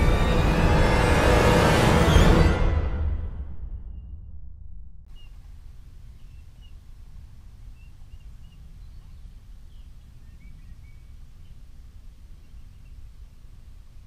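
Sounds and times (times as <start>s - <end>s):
low outdoor rumble: 0.0s - 14.0s
small birds chirping: 5.1s - 14.0s.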